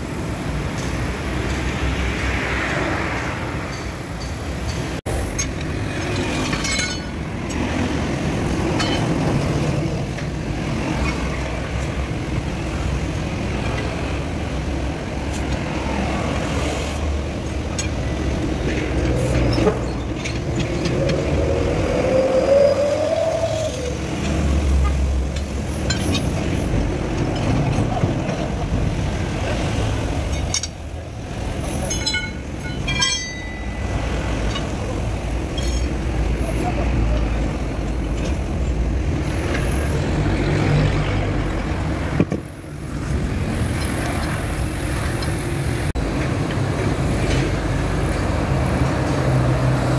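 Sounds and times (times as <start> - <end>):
truck engine rumbling: 3.1 - 49.9
sharp metallic clinks: 3.7 - 7.2, 31.6 - 35.9.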